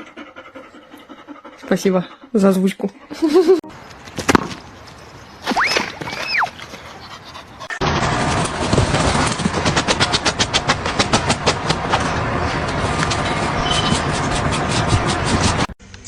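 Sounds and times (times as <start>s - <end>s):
dog panting: 0.0s - 3.6s, 6.7s - 7.8s
brief high squeak: 13.6s - 14.0s.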